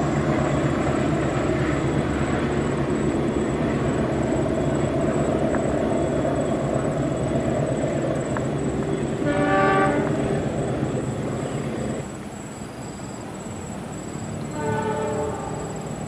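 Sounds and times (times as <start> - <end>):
passing train rumble: 0.0 - 16.0
locomotive horn: 9.2 - 10.5, 14.5 - 16.0.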